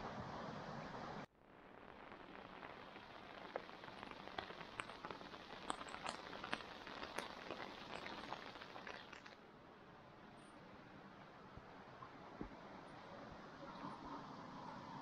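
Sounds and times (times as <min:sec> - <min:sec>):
rain falling: 0:01.7 - 0:09.4
ticks of single raindrops: 0:01.8 - 0:09.4.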